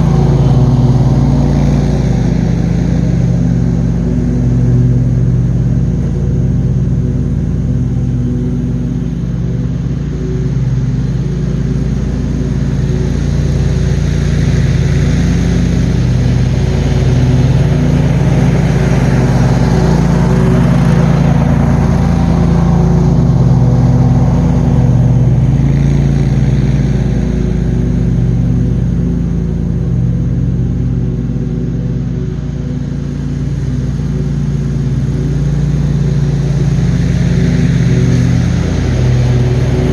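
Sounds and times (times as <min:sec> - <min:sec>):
rushing noise: 0:00.0 - 0:05.2
mower engine running: 0:00.0 - 0:39.9.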